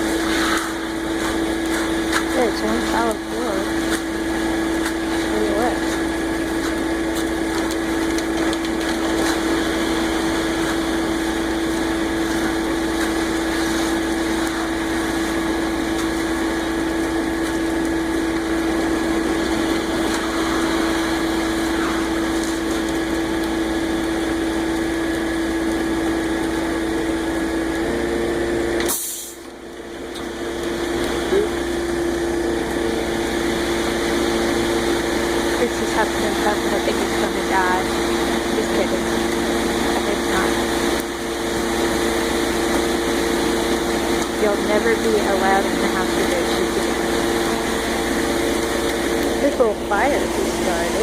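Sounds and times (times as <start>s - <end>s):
truck engine running: 0.0s - 51.0s.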